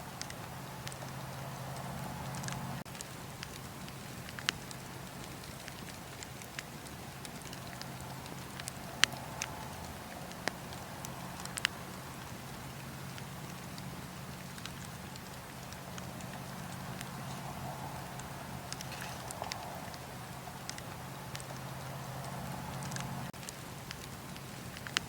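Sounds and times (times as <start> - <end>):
campfire crackling: 0.0 - 25.0
soft steady hiss: 0.0 - 25.0.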